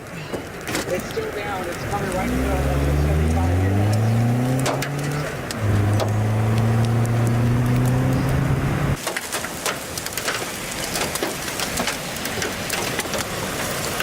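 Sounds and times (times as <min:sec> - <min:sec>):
rain: 0:00.0 - 0:14.0
wind: 0:00.0 - 0:14.0
vehicle engine running: 0:01.6 - 0:09.0
debris or hail striking: 0:09.0 - 0:14.0.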